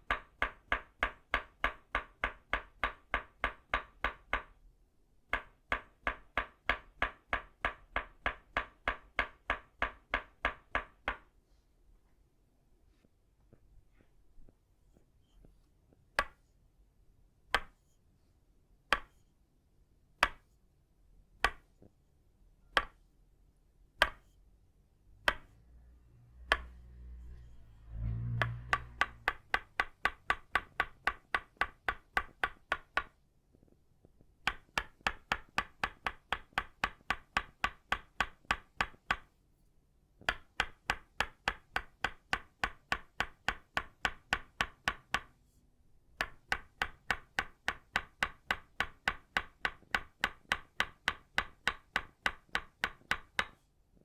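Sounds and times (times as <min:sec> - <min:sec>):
wooden mallet striking wood: 0:00.0 - 0:04.6, 0:05.3 - 0:11.3, 0:16.2 - 0:16.4, 0:17.5 - 0:17.8, 0:18.9 - 0:19.2, 0:20.2 - 0:20.5, 0:21.4 - 0:21.7, 0:22.7 - 0:23.0, 0:24.0 - 0:24.4, 0:25.2 - 0:25.6, 0:26.3 - 0:33.2, 0:34.4 - 0:39.3, 0:40.2 - 0:45.3, 0:46.2 - 0:53.6.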